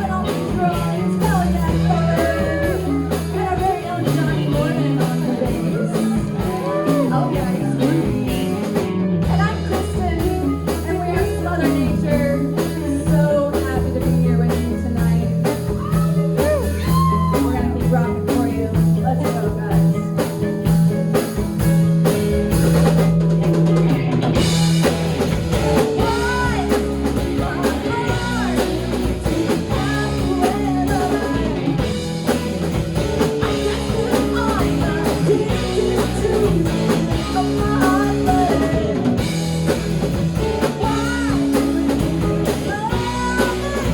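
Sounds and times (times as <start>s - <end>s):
electric guitar lead line: 0.0s - 43.9s
rock band playing live: 0.0s - 43.9s.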